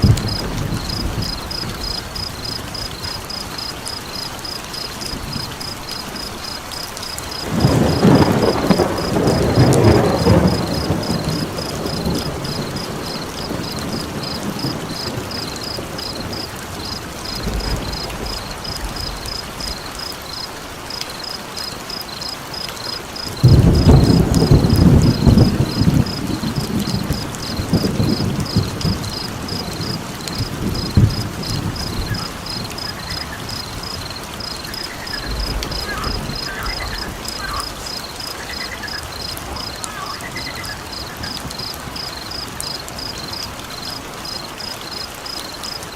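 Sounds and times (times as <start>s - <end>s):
thunder rolling: 0.0s - 3.6s, 7.3s - 20.1s, 23.2s - 42.4s
cricket chirping: 0.0s - 45.9s
steady rain: 0.0s - 45.9s.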